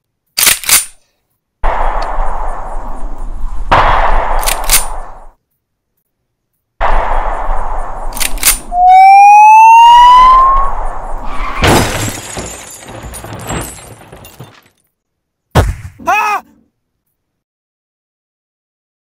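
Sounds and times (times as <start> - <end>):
gunshots: 3.7 - 5.3, 6.8 - 8.9
police siren whoop: 8.8 - 10.8
vehicle crash with shattering debris: 11.2 - 14.8.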